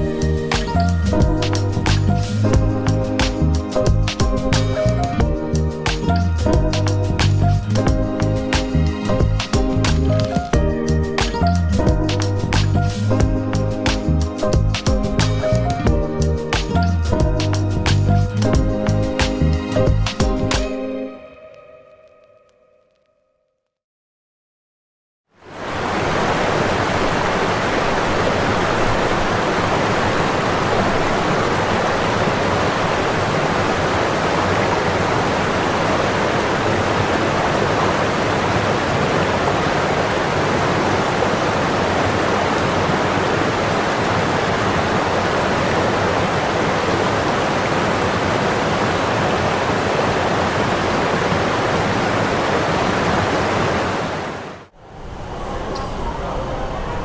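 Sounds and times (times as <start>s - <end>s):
waterfall rushing: 25.4s - 57.0s.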